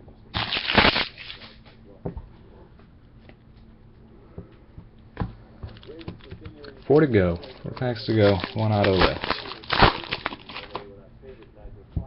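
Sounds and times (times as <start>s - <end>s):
cards sliding rustle: 7.4s - 10.8s.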